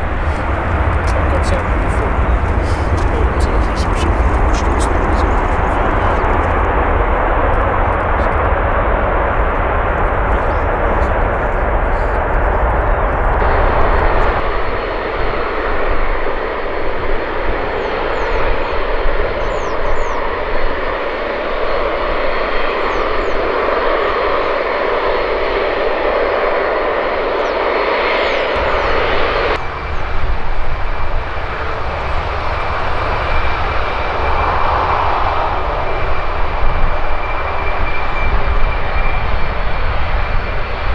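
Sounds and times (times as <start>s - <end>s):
jet engines rushing: 0.0s - 18.2s, 28.5s - 40.9s.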